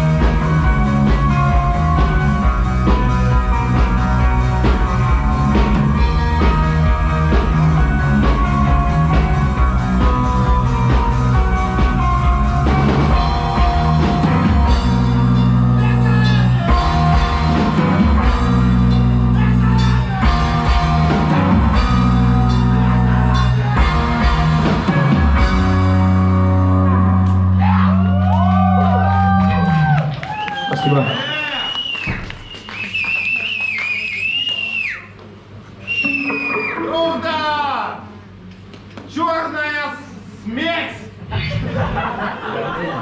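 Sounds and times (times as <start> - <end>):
live rock band playing: 0.0 - 30.0, 35.9 - 37.4
long low bass notes: 0.0 - 30.1.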